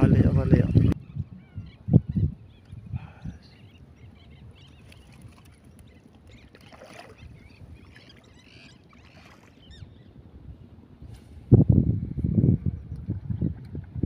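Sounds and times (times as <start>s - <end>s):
birds chirping: 0.0s - 10.7s
low fluttering rumble: 9.8s - 14.0s.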